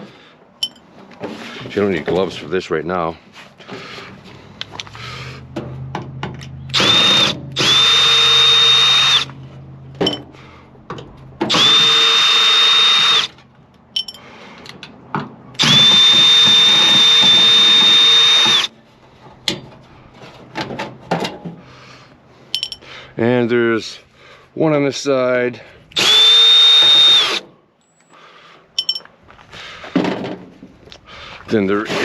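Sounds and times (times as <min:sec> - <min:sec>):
power drill whining: 0:06.7 - 0:09.4, 0:11.5 - 0:13.4, 0:15.6 - 0:18.7, 0:25.9 - 0:27.5.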